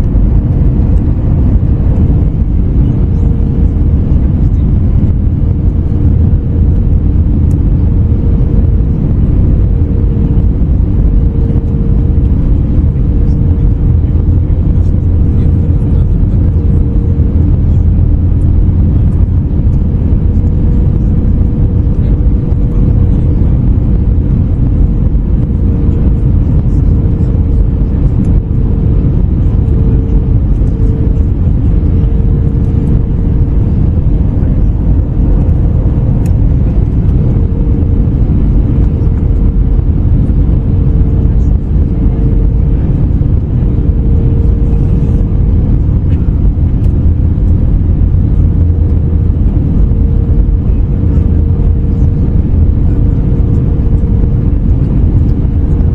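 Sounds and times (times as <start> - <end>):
airplane cabin rumble: 0.0 - 55.9
steady hum: 0.0 - 55.9.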